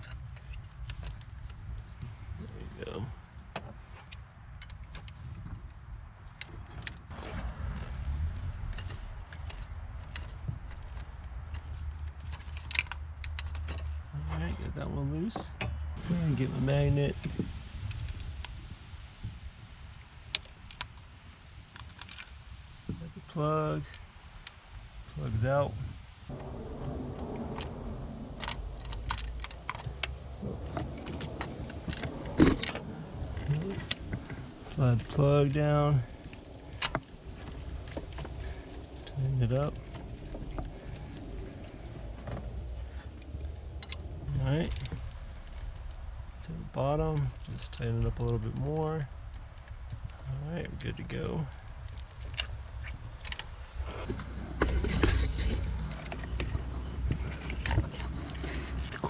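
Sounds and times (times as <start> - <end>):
low rumble: 7.0 - 59.0
metal tools clinking: 8.7 - 13.9.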